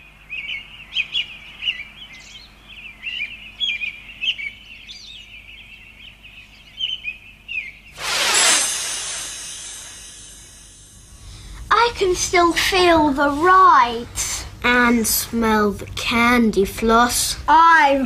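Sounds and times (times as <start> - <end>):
songbirds chirping and warbling: 0.0 - 8.0
loud rushing hiss: 8.0 - 11.4.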